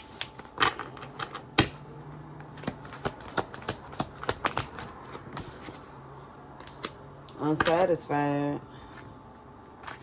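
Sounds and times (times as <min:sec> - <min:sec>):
cards being shuffled: 0:00.0 - 0:05.9.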